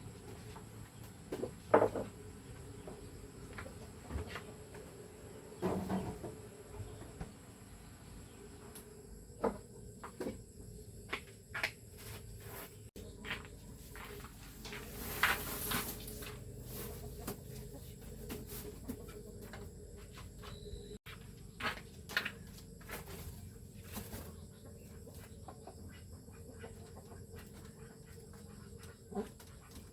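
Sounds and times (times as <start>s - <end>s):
rustling clatter: 14.4s - 19.2s.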